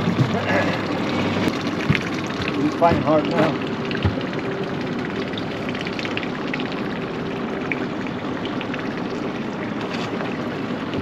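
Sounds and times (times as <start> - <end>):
boat motor running: 0.0 - 11.0
faint ticks and splashes: 0.0 - 11.0
water wash: 0.0 - 11.0.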